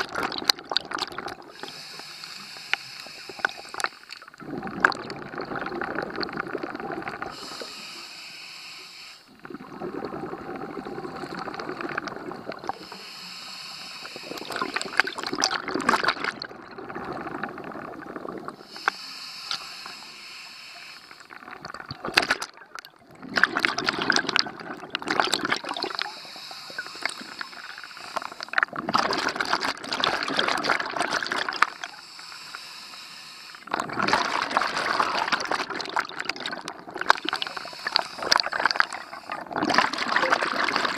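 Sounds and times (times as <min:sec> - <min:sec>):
exhaled bubbles burbling: 0:00.0 - 0:01.8, 0:03.3 - 0:07.6, 0:09.3 - 0:12.8, 0:14.2 - 0:18.7, 0:21.2 - 0:31.8, 0:33.6 - 0:40.9
regulator inhale hiss: 0:01.5 - 0:04.2, 0:07.3 - 0:09.4, 0:12.6 - 0:15.0, 0:18.6 - 0:21.4, 0:25.8 - 0:28.6, 0:31.5 - 0:33.7, 0:37.2 - 0:39.5.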